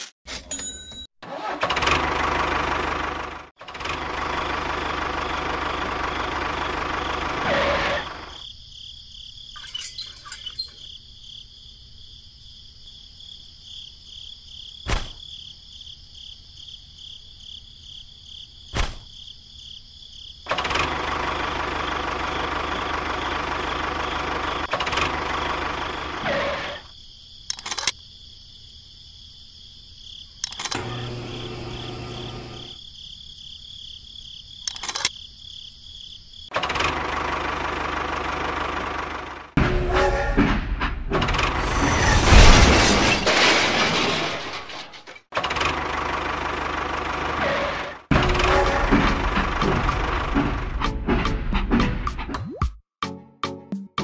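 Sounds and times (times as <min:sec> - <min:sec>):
small motor running: 0:30.6 - 0:32.8
sharp clicks: 0:34.7 - 0:35.2.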